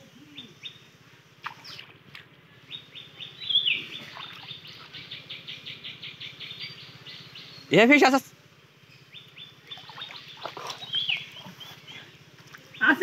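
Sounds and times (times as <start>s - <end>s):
bird chirping rapidly: 2.6s - 8.2s, 8.9s - 12.0s
water splashing: 3.8s - 5.0s, 9.6s - 11.6s.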